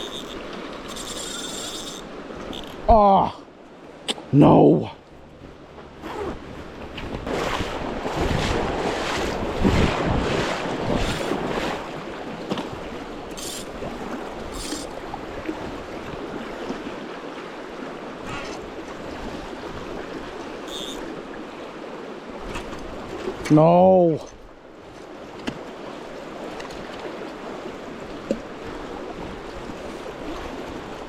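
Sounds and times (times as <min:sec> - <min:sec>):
river water flowing: 0:00.0 - 0:31.0
wind buffeting microphone: 0:05.3 - 0:11.9.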